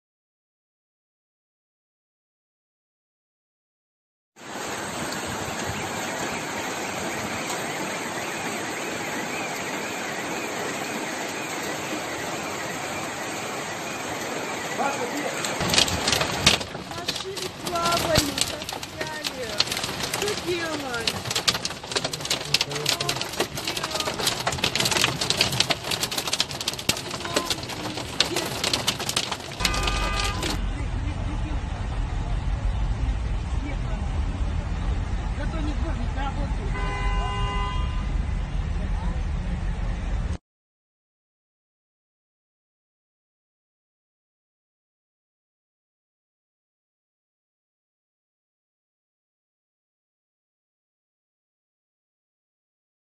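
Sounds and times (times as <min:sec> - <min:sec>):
heavy rain: 0:04.4 - 0:37.2.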